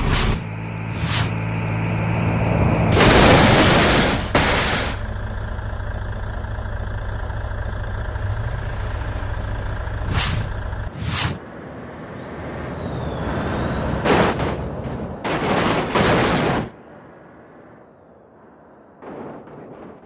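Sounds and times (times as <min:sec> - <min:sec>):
truck engine idling: 0:00.4 - 0:10.9.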